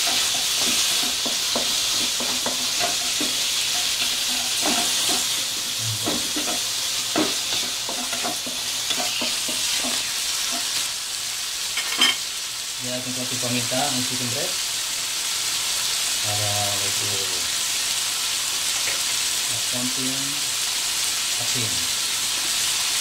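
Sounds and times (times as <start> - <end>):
wooden spatula scraping a wok: 0.0 - 10.8
chicken sizzling in oil: 0.0 - 23.0.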